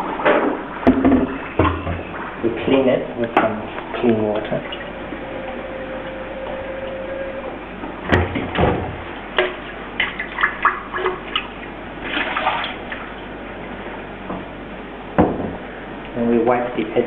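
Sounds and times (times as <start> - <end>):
water splash: 10.0 - 13.1.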